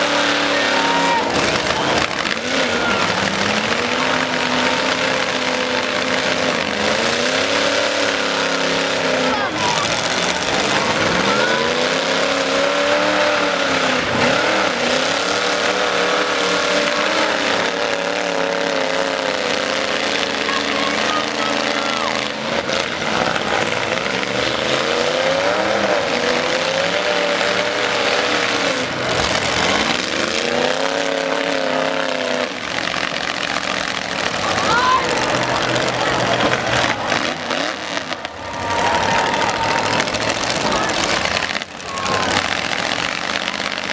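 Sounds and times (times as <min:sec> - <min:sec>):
truck engines revving hard: 0:00.0 - 0:43.9.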